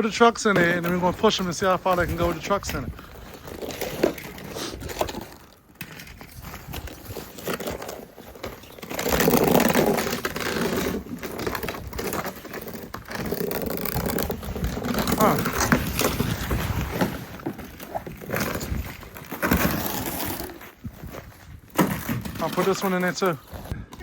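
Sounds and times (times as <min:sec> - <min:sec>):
scraping and crunching in snow: 0:00.0 - 0:23.8.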